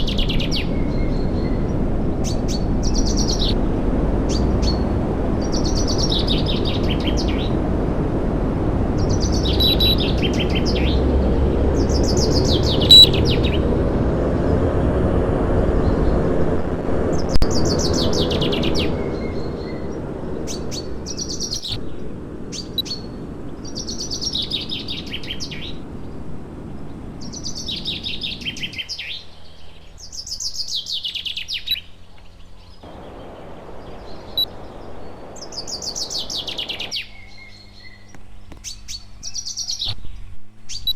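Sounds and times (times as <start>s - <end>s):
low rushing noise: 0.0s - 29.6s, 32.8s - 38.1s
bird trilling: 9.0s - 11.0s, 12.0s - 13.6s, 21.2s - 21.8s.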